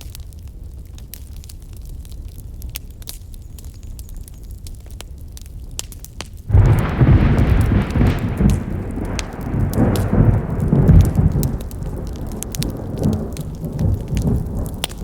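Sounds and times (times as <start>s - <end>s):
campfire crackling and popping: 0.0s - 15.0s
low rumble: 6.5s - 14.9s.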